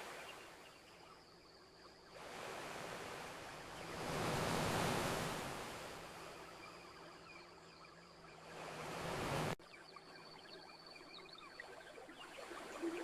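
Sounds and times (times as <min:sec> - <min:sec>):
ocean waves on a beach: 0:00.0 - 0:00.9, 0:01.6 - 0:09.6.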